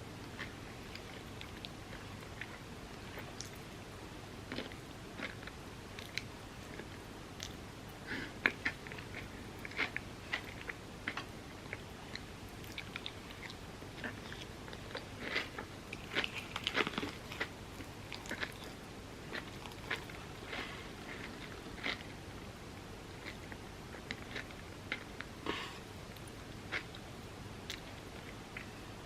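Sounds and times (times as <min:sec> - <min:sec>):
crunchy chewing: 0:04.5 - 0:07.6, 0:08.4 - 0:22.2.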